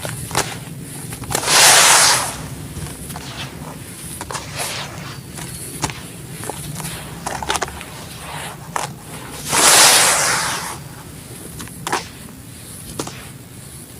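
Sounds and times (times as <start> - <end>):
gritty crunches of cement chunks: 0.0 - 9.7
rush of grit: 1.3 - 11.1.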